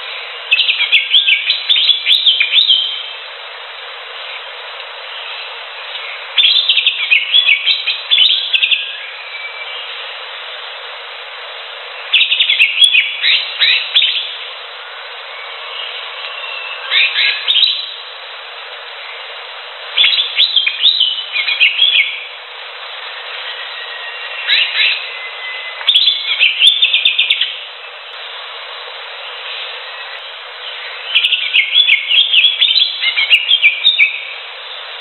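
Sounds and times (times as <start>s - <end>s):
bird chirping song: 0.0s - 3.3s, 5.1s - 10.2s, 12.0s - 14.5s, 15.2s - 18.0s, 20.0s - 22.4s, 23.0s - 28.0s, 29.2s - 34.9s
steady hiss: 0.0s - 35.0s.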